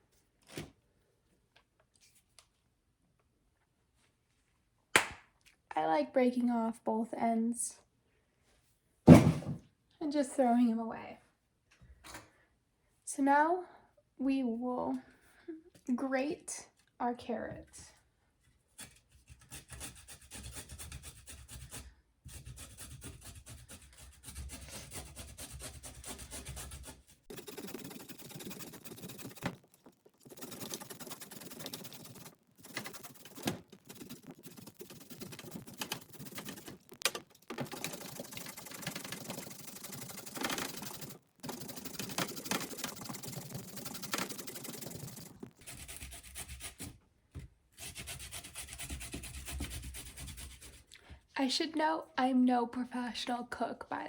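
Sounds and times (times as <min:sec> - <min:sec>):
carrot grated on a grater: 0:18.8 - 0:46.9.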